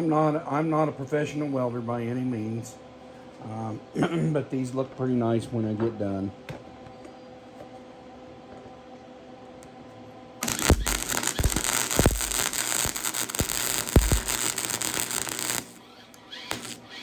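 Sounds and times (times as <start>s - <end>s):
welder arc crackling and hissing: 10.4s - 17.0s.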